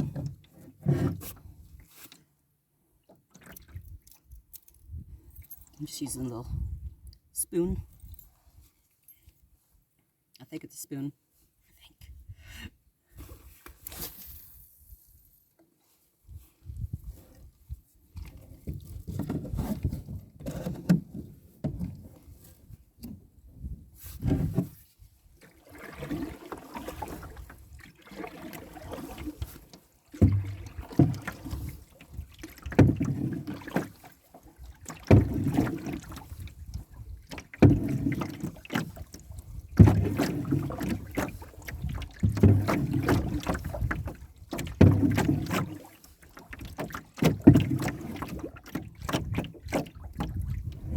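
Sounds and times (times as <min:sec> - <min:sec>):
canoe paddle strokes in water: 0:00.0 - 0:02.4, 0:15.6 - 0:50.9.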